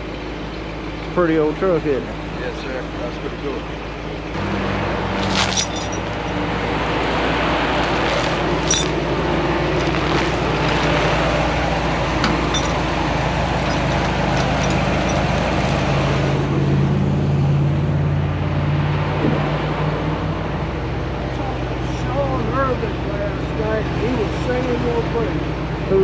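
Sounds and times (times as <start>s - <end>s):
truck engine humming: 4.4s - 18.5s.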